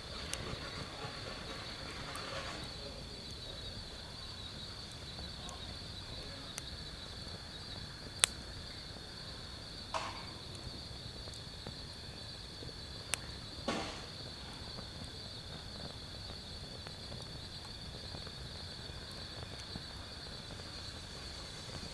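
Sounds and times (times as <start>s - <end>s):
crickets chirring: 0.0s - 21.9s
wood fire popping and crackling: 0.0s - 21.9s.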